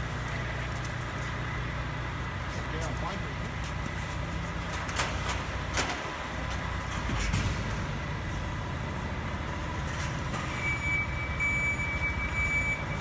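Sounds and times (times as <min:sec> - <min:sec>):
heavy vehicle engine rumbling: 0:00.0 - 0:13.0
high electronic beep: 0:10.6 - 0:13.0.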